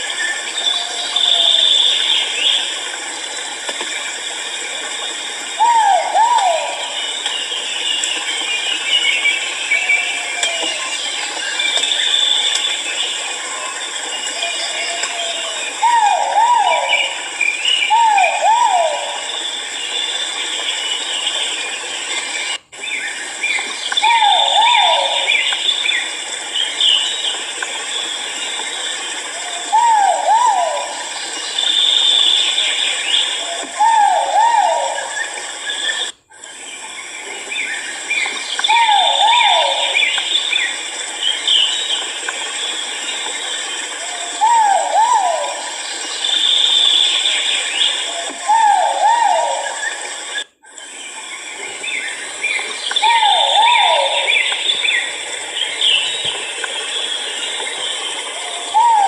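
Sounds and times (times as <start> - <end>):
steady high background hiss: 0.0 - 59.0.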